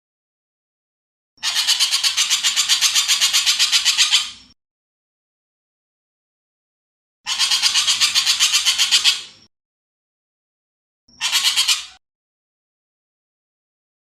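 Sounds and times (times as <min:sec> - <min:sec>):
bird rattling calls: 0:01.4 - 0:04.4, 0:07.3 - 0:09.3, 0:11.2 - 0:12.0.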